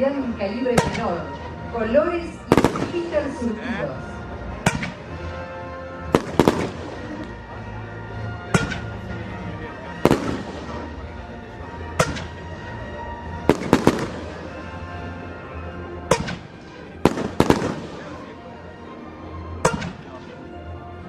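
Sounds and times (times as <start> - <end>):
background music: 0.0 - 21.0
fireworks bangs: 2.5 - 3.2, 6.2 - 7.4, 10.0 - 11.1, 13.5 - 14.7, 16.1 - 18.3.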